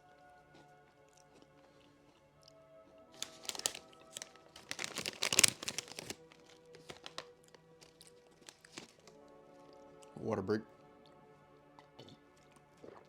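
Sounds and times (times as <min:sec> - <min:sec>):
soft background music: 0:00.0 - 0:13.0
plastic packaging crinkling: 0:03.2 - 0:09.1.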